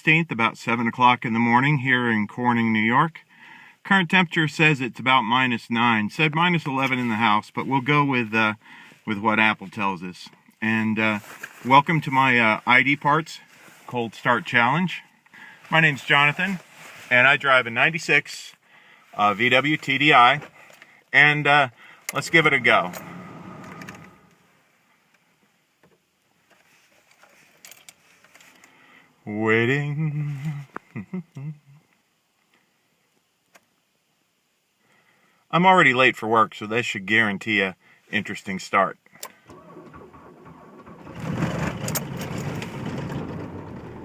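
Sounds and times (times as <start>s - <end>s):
diesel engine cranking and starting: 22.1s - 24.4s, 39.4s - 44.0s.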